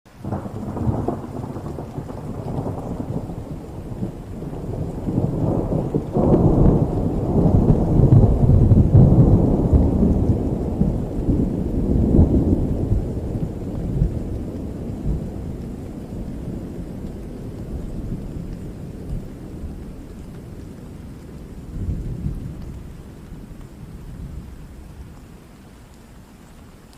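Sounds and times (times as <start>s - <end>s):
steady rain: 0.1s - 26.9s
thunder rolling: 0.2s - 24.5s.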